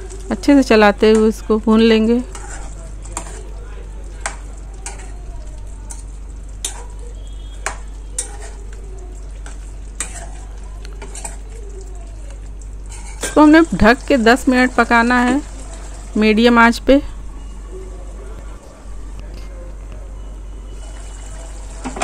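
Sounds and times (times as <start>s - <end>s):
chicken sizzling in oil: 0.0s - 16.8s, 20.6s - 22.0s
metal spoon scraping a pan: 2.0s - 3.6s, 4.2s - 5.1s, 5.9s - 8.8s, 9.4s - 11.6s, 12.8s - 13.7s.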